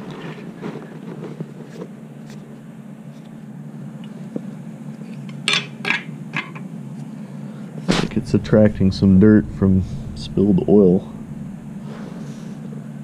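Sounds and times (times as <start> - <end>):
steady low hum: 6.2 - 13.0.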